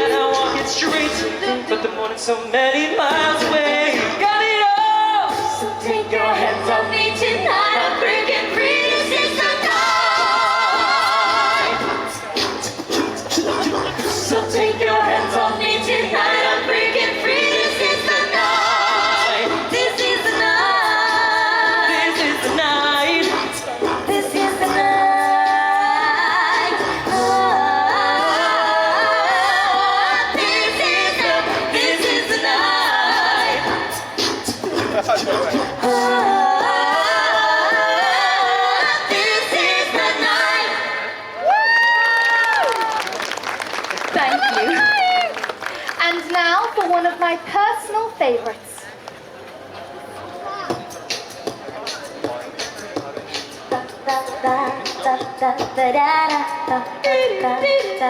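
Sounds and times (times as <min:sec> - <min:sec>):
vocal group singing in harmony: 0:00.0 - 0:41.4, 0:53.6 - 0:58.0.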